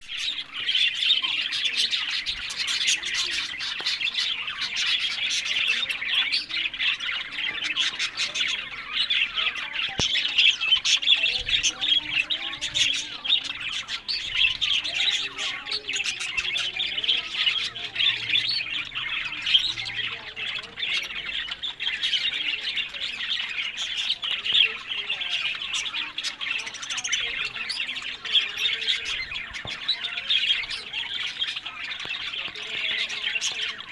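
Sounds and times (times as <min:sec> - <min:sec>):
budgerigars chirping: 0:00.0 - 0:33.9.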